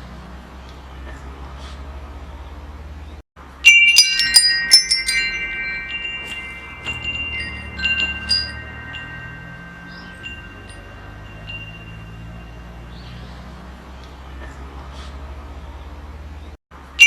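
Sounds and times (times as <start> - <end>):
metal wind chimes ringing: 3.6 - 13.6.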